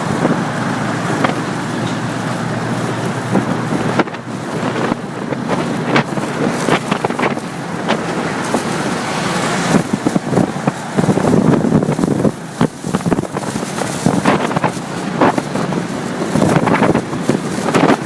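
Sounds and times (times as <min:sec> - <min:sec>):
motorcycle engine: 0:00.0 - 0:18.0
road noise: 0:00.0 - 0:18.0
wind buffeting microphone: 0:00.0 - 0:18.0.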